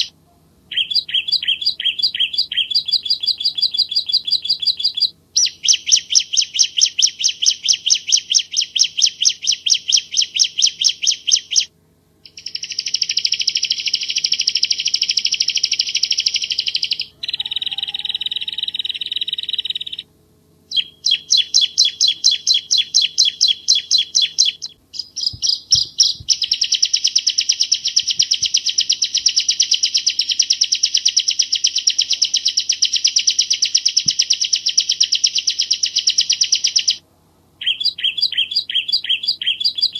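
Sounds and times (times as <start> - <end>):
faint low hum: 0.0 - 39.9
bird singing rapid high notes: 0.7 - 20.1, 20.7 - 37.0, 37.6 - 39.9.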